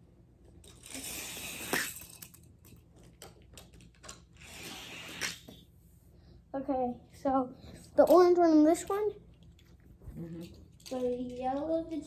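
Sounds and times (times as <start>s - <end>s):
small objects rustling and clicking: 0.4s - 5.5s.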